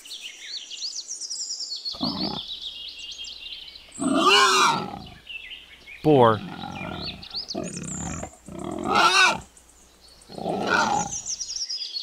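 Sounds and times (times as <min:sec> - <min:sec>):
faint birds chirping: 0:00.0 - 0:12.0
wild boar grunting: 0:02.0 - 0:02.5, 0:03.8 - 0:05.3, 0:06.1 - 0:11.5.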